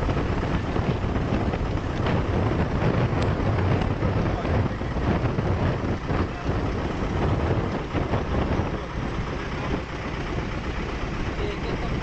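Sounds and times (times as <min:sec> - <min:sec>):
motorboat engine rumbling: 0:00.0 - 0:12.0.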